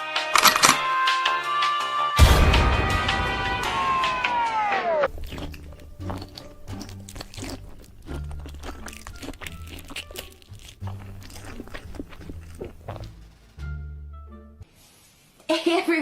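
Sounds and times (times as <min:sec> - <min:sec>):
crunchy chewing and biting: 0:05.1 - 0:13.2.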